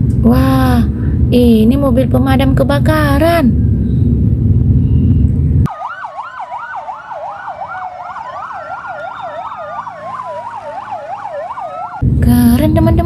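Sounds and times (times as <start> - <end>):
low rumble: 0.0 - 5.7, 12.0 - 13.0
toy electronic siren wailing: 5.7 - 12.0.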